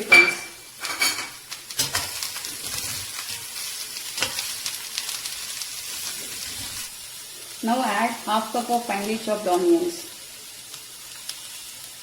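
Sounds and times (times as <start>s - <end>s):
spatula scraping and knocking pan: 0.0s - 4.8s
vegetables sizzling in oil: 0.0s - 12.0s.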